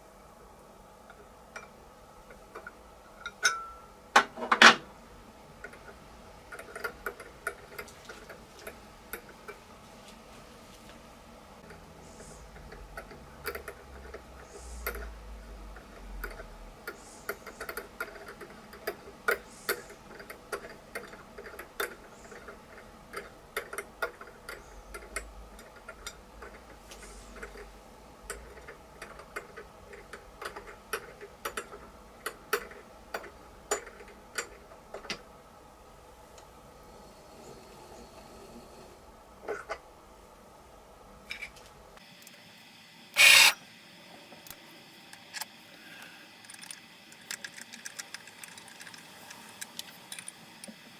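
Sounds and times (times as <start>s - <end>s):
faint steady hum: 0.0s - 50.9s
tap wrench clicking in metal: 43.2s - 43.6s.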